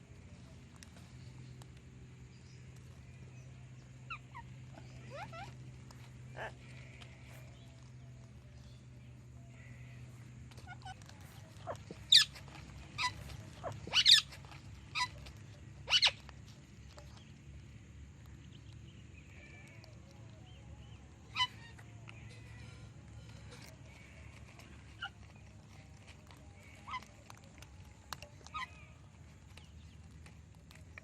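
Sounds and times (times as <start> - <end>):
parrots shrill calls: 4.1 - 7.4, 9.5 - 16.3, 21.2 - 23.6, 24.2 - 25.2, 26.6 - 27.1, 28.4 - 29.0.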